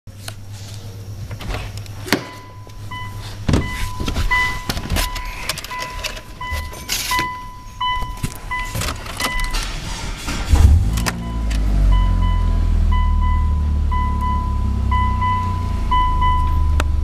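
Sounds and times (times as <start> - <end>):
car engine low hum: 0.1 - 17.0
steady high tone: 11.2 - 16.8.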